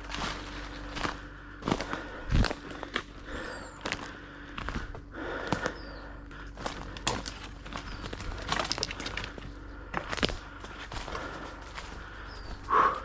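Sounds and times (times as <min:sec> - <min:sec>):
footsteps crunching through dry brush: 0:00.0 - 0:13.0
bird chirps: 0:05.6 - 0:06.2, 0:12.2 - 0:13.0.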